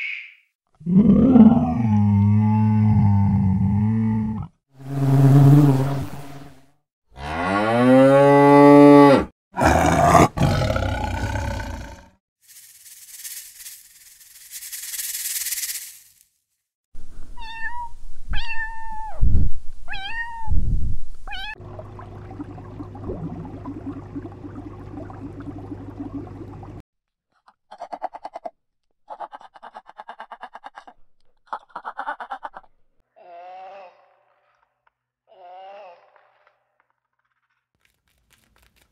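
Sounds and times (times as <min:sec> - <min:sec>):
steady low hum: 0:21.6 - 0:26.8.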